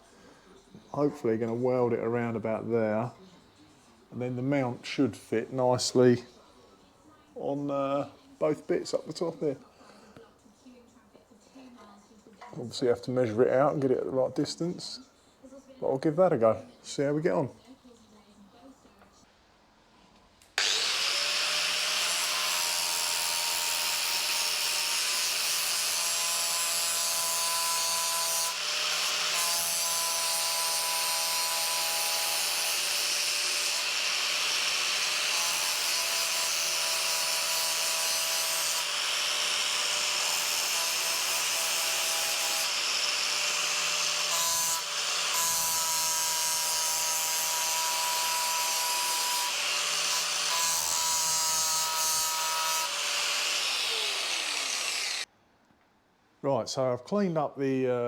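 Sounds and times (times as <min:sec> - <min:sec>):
power grinder grinding metal: 0:20.6 - 0:55.3.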